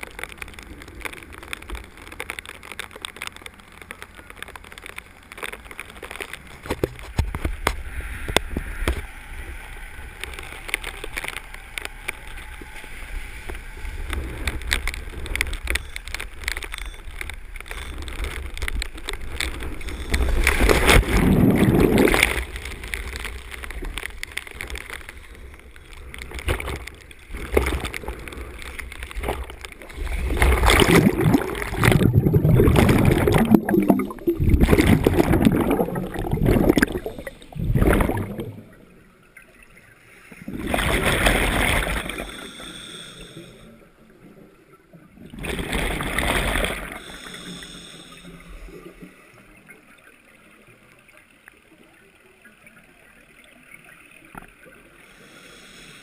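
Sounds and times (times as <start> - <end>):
rush of water noise: 0.0 - 43.7, 45.1 - 50.1
underwater breathing bubbles: 17.6 - 38.8, 40.1 - 43.9, 45.3 - 49.4, 54.8 - 56.0.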